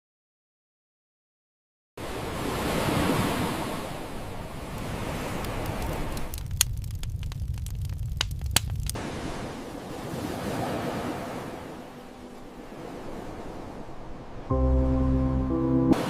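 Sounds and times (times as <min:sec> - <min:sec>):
snowstorm wind hissing: 0:02.0 - 0:11.8
sharp cracks: 0:04.7 - 0:09.0
low rumble: 0:06.2 - 0:09.0.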